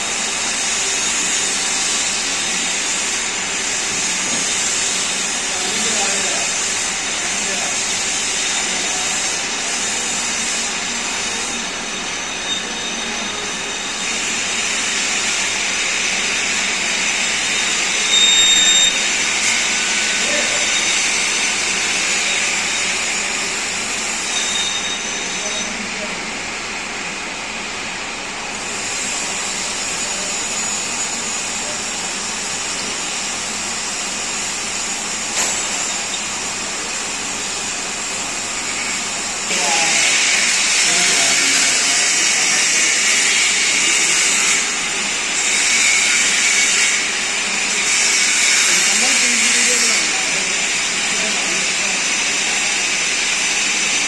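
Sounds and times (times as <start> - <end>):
metal-working machine whirring: 0.0 - 54.0
high-pitched squeal: 16.2 - 26.1.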